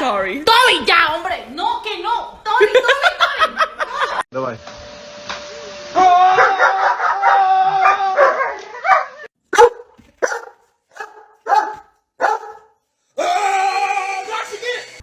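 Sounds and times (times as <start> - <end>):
dog howling: 6.0 - 9.7
dog barking: 6.4 - 12.8.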